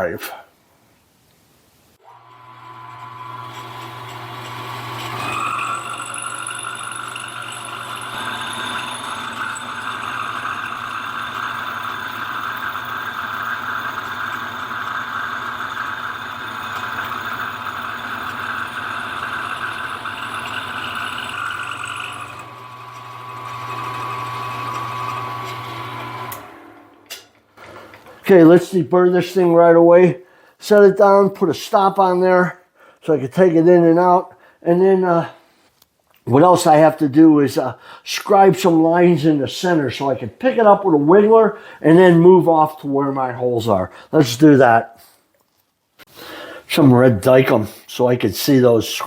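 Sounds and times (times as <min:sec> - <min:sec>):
milling machine motor hum: 0:02.1 - 0:27.1
milling cutter cutting metal: 0:02.1 - 0:27.4.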